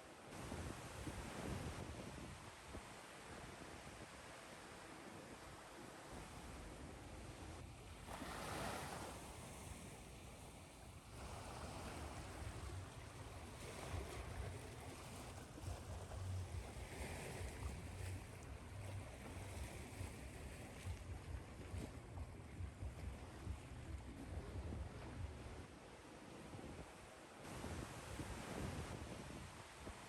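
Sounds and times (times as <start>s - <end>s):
ocean waves washing in: 8.0s - 30.0s.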